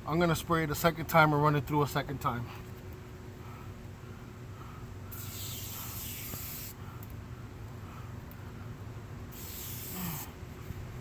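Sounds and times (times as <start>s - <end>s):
aerosol spray hissing: 5.1s - 6.8s, 9.3s - 10.4s.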